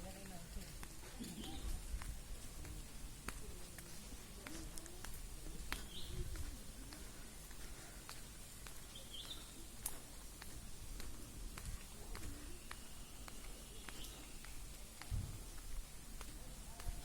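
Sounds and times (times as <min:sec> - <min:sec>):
bird chirps: 0:08.9 - 0:09.6, 0:12.6 - 0:14.6
faint clicks: 0:09.8 - 0:15.1.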